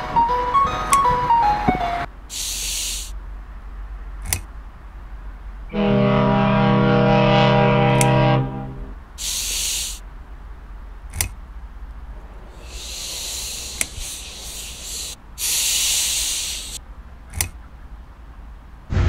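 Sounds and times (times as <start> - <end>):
man shushing: 2.3 - 3.1, 9.2 - 10.0, 12.5 - 16.8
short sharp clicks: 13.4 - 15.1.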